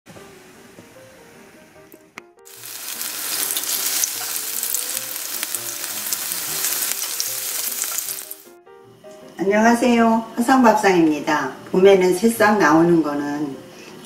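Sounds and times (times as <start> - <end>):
batter frying in oil: 2.5 - 8.5.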